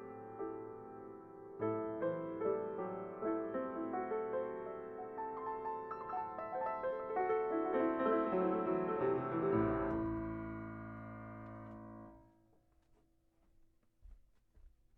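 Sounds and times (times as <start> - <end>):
grand piano notes and chord: 0.0 - 12.4.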